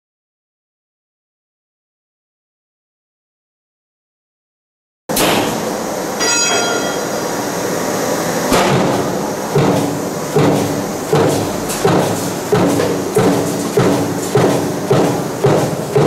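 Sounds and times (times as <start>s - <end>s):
power press stamping: 5.1s - 7.7s, 8.4s - 16.0s
steady machine noise: 5.1s - 16.0s.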